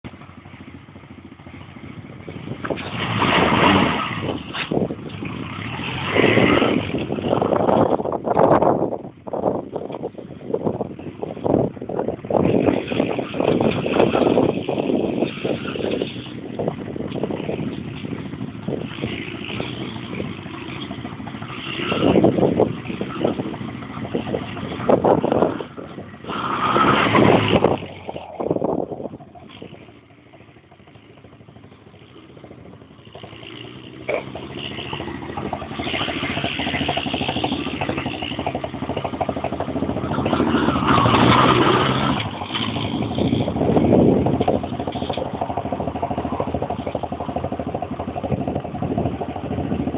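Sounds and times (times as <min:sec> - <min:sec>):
quad bike engine revving: 0:01.5 - 0:08.8, 0:12.3 - 0:30.0, 0:31.4 - 0:49.9
quad bike engine running: 0:27.1 - 0:49.9.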